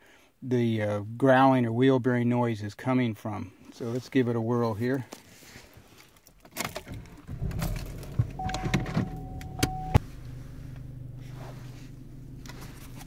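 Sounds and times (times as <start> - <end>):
car engine starting and idling: 6.3 - 13.0.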